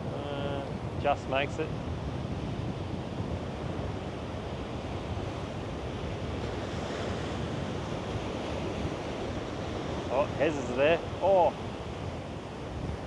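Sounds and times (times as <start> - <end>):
ocean surf washing in: 0.0 - 13.0
wind buffeting microphone: 0.0 - 13.0.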